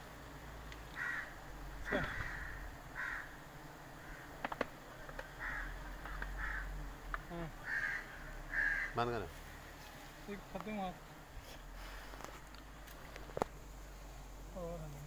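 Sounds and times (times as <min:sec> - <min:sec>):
bird calling: 0:00.9 - 0:09.9.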